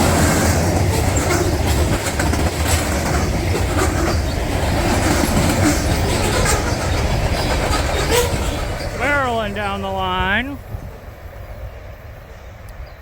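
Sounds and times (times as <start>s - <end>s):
wheels clicking over rail joints: 0.0s - 9.5s
train wheels rumbling on rails: 0.0s - 13.0s.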